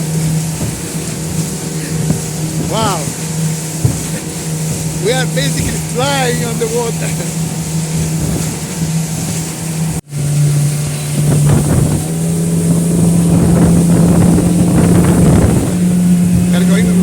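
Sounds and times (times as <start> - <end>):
outboard engine drone: 0.0 - 17.0
wind noise on microphone: 7.6 - 17.0.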